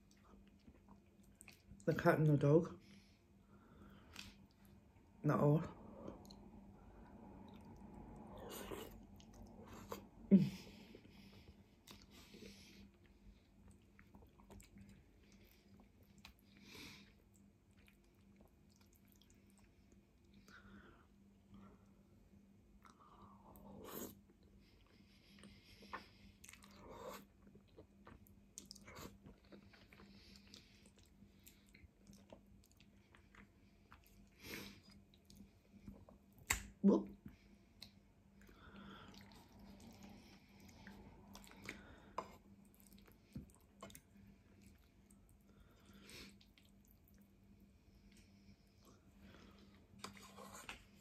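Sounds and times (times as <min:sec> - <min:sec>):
wet chewing: 0:12.8 - 0:19.7, 0:37.8 - 0:47.4.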